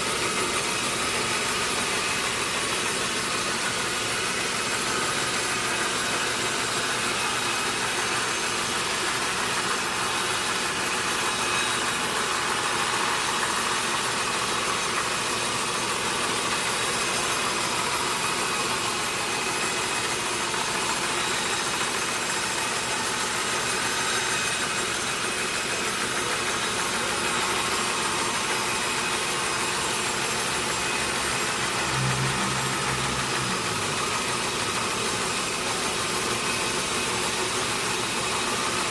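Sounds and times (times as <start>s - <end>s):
sawmill machinery running: 0.0s - 38.9s
low hum dropping in pitch: 30.9s - 35.3s.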